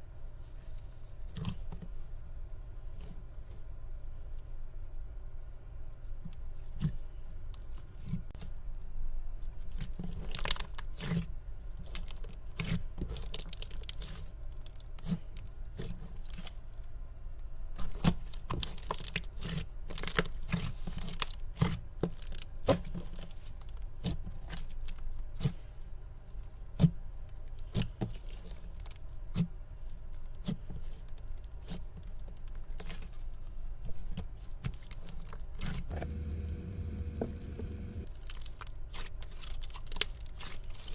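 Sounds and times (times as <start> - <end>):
hands squishing slime: 9.7 - 16.6, 17.8 - 25.7, 26.6 - 40.9
crackling clicks and crunches: 34.8 - 40.9
steady low hum: 35.8 - 38.1.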